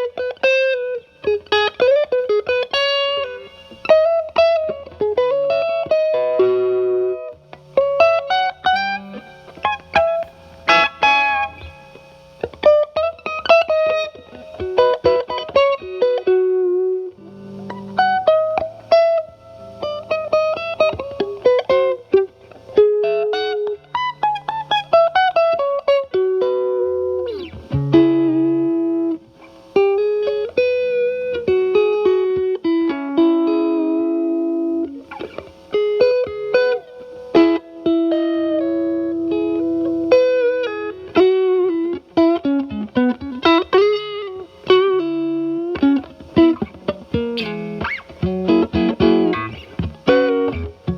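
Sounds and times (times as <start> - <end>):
overdriven electric guitar lead: 0.0 - 50.9.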